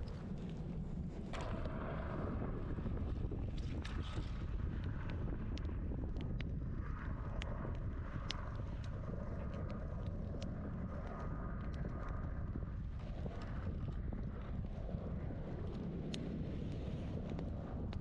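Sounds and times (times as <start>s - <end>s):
wind buffeting microphone: 0.0s - 18.0s
campfire crackling and popping: 3.5s - 18.0s.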